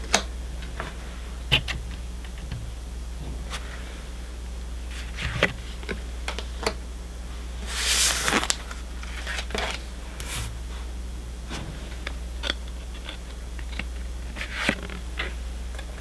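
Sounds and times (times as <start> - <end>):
rustling slide of cards: 7.6 - 8.8, 10.2 - 10.6
trading cards handled and flipped: 7.6 - 10.6.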